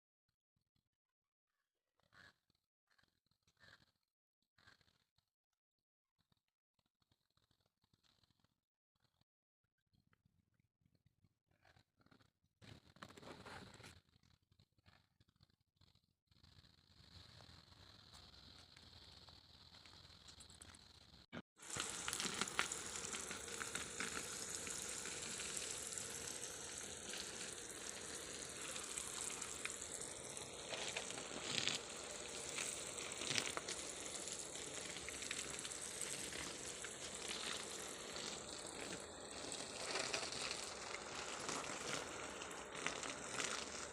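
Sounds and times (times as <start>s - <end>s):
faint crackle: 11.6s - 43.9s
steady hissing noise: 21.6s - 43.9s.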